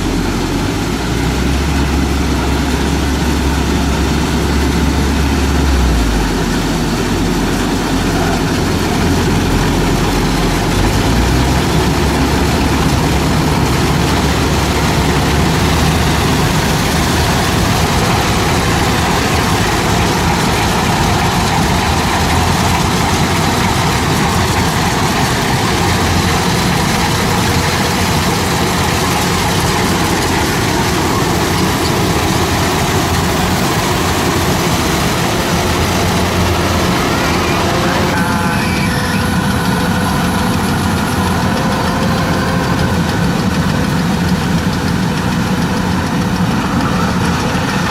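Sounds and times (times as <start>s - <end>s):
harvester engine rumbling: 0.0s - 47.9s.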